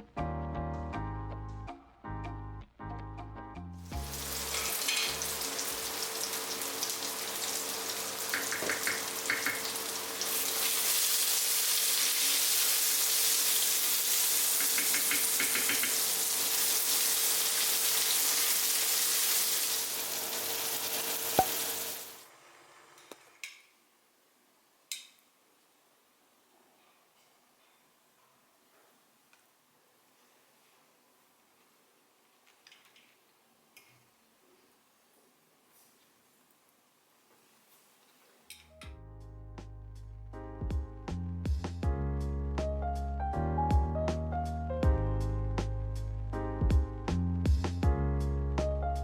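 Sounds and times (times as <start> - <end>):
food sizzling in a frying pan: 3.8 - 22.3.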